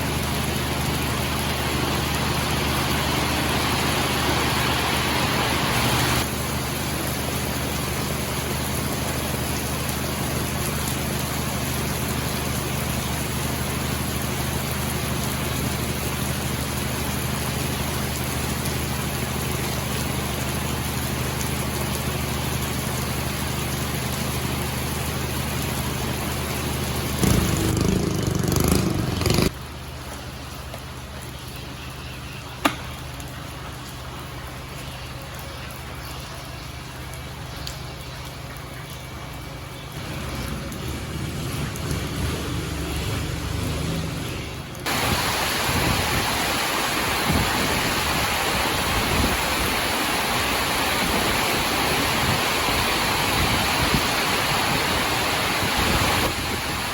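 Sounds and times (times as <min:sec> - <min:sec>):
boat engine running: 0:26.6 - 0:29.5.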